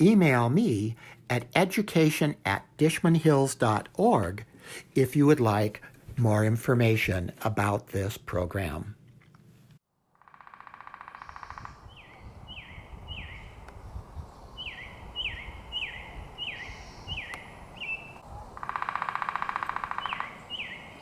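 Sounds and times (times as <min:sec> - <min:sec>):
rapid buzzy bird trill: 0:10.2 - 0:13.4, 0:14.6 - 0:21.0
birds singing whistled notes: 0:11.1 - 0:21.0.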